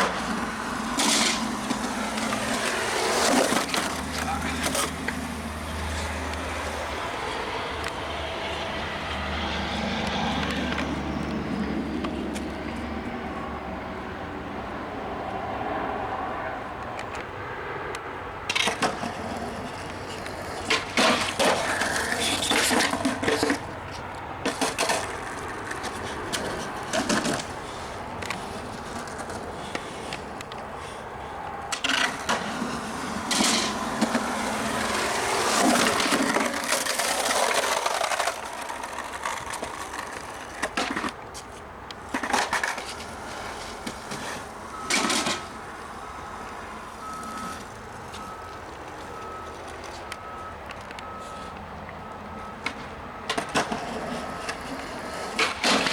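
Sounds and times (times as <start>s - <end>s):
skateboard clacking and slapping: 0.0s - 6.8s, 18.5s - 23.8s, 24.4s - 27.6s, 31.7s - 48.8s, 52.6s - 55.9s
skateboard wheels rolling: 0.0s - 51.6s, 52.5s - 55.9s.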